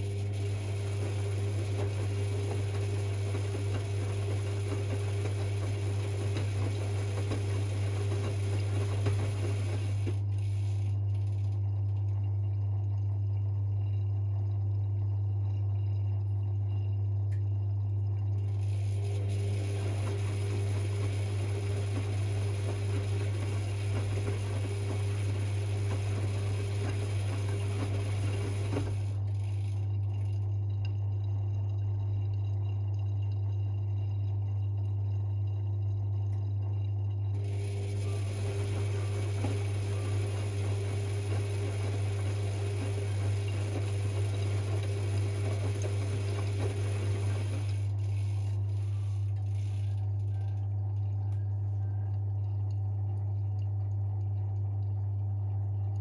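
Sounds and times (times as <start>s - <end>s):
steady low hum: 0.0s - 56.0s
washing machine drum turning: 0.5s - 10.3s, 19.3s - 29.1s, 37.6s - 47.8s.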